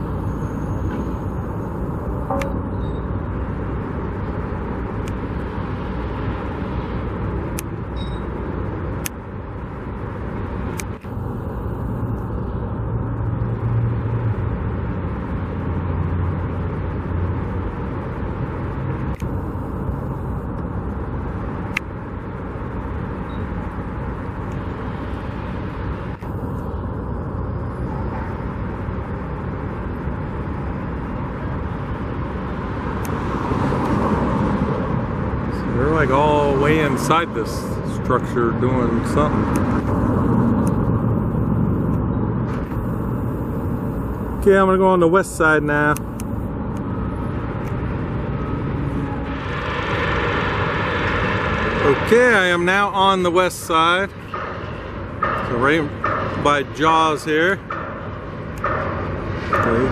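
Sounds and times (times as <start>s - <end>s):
road traffic: 0.0s - 59.9s
heavy vehicle rumbling past: 46.4s - 59.9s.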